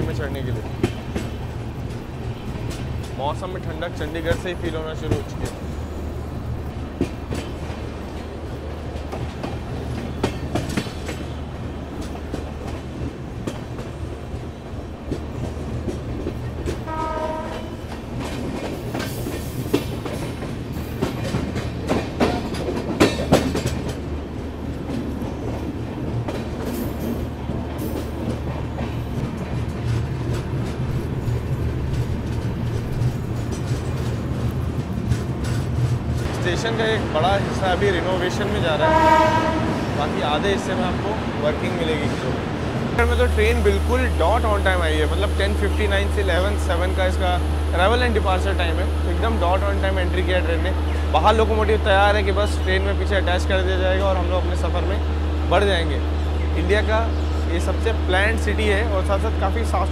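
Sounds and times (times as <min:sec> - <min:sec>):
train running rumble: 0:00.0 - 0:59.9
wheels clacking over rail joints: 0:00.0 - 0:59.9
short train horn: 0:16.9 - 0:17.8, 0:38.8 - 0:39.8.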